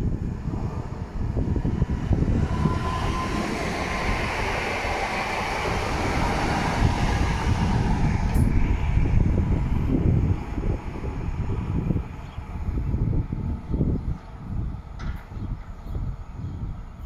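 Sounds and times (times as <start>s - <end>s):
train passing: 0.0s - 15.0s
wheels rumbling on rails: 0.0s - 17.0s.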